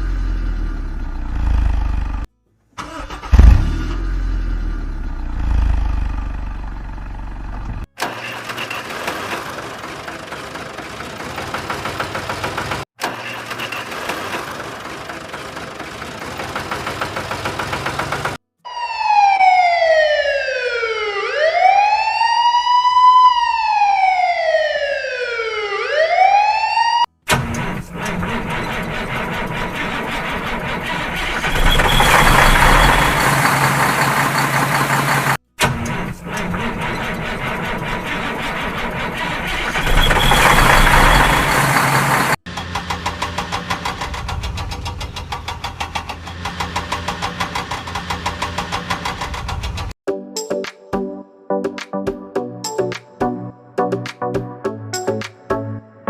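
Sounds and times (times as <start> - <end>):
vehicle engine humming: 0.0 - 7.9, 27.5 - 49.9
siren wailing: 18.6 - 27.1, 39.1 - 42.4.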